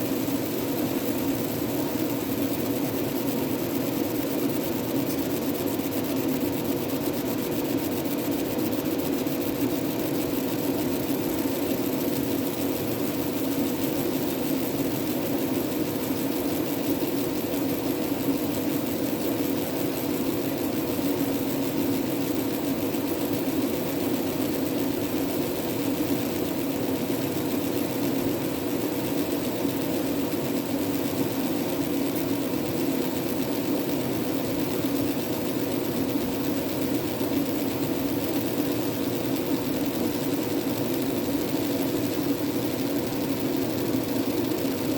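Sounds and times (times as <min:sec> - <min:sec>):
laser engraving machine humming: 0:00.0 - 0:44.9.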